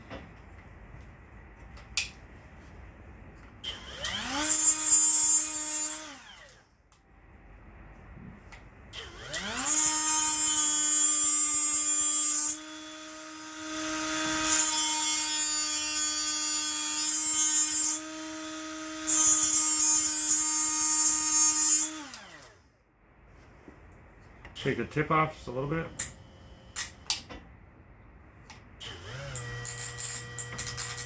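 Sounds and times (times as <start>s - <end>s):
die grinder whine: 3.7s - 6.6s, 9.0s - 22.6s, 28.8s - 31.0s.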